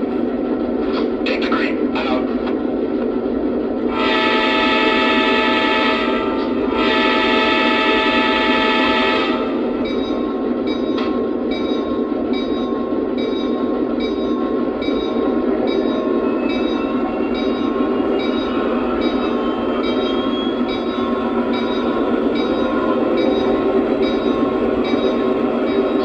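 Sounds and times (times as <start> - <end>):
model train diesel horn: 3.9 - 9.7.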